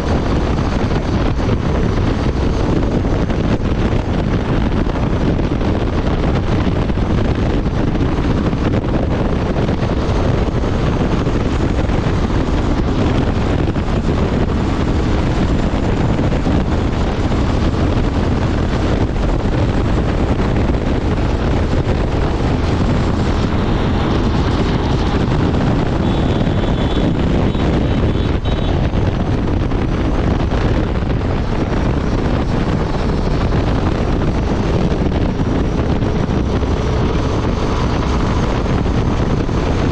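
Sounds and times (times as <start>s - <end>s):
motorcycle engine at highway speed: 0.0s - 39.9s
wind rush on microphone: 0.0s - 39.9s.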